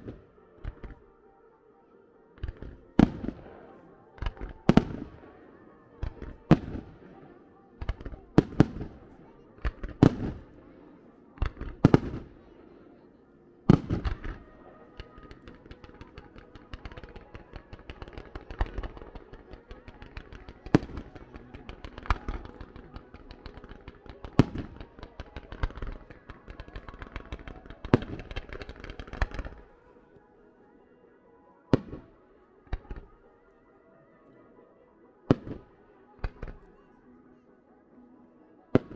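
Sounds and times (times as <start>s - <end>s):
fireworks crackling: 0.0s - 1.1s, 2.4s - 12.8s, 13.7s - 30.0s, 31.7s - 33.2s, 35.3s - 36.8s
firework bangs: 2.4s - 5.4s, 6.0s - 10.7s, 11.4s - 12.5s, 13.7s - 29.8s, 31.7s - 32.1s.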